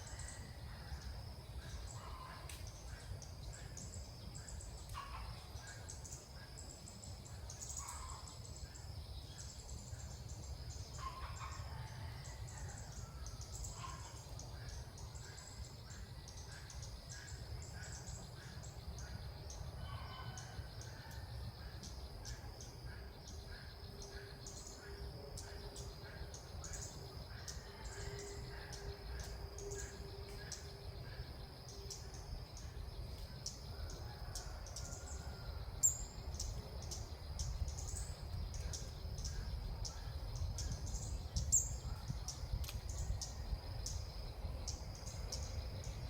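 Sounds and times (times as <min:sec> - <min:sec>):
birds chirping and calling: 0:01.0 - 0:30.8
low wind rumble: 0:22.1 - 0:46.0.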